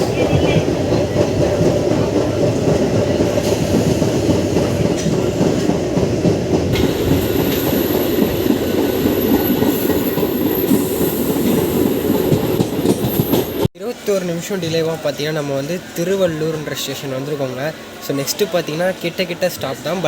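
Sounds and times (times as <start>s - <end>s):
electric train rumbling on rails: 0.0s - 13.7s.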